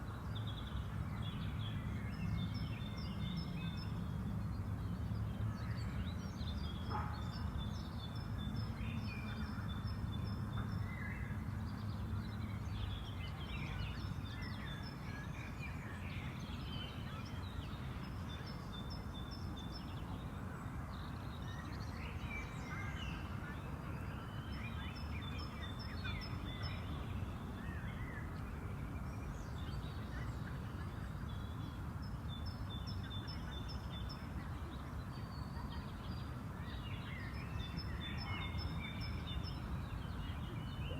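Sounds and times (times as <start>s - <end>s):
birds singing and chirping: 5.2s - 20.2s, 24.0s - 40.9s.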